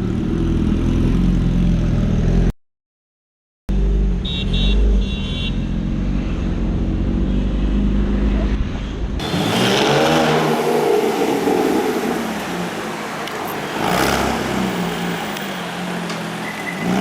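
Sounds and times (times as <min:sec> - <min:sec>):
sports car engine revving: 0:09.2 - 0:17.0.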